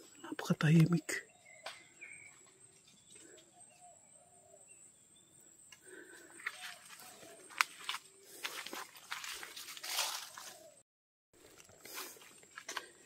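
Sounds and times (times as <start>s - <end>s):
faint bird calls: 0.0s - 8.7s, 10.0s - 10.8s
footsteps rustling in undergrowth: 6.3s - 10.8s, 11.4s - 13.0s.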